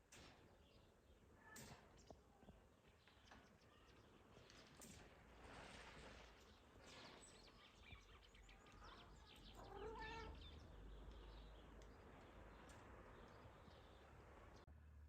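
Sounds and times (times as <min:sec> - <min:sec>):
cat meowing: 0:09.6 - 0:10.4.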